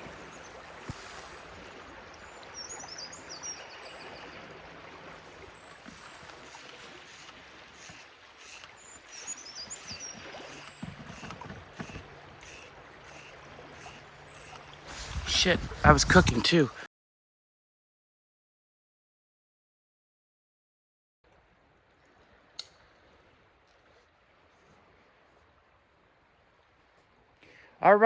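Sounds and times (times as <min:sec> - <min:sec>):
stream running: 0:00.0 - 0:16.9, 0:21.3 - 0:28.0
hand water filter pump strokes: 0:05.2 - 0:16.8.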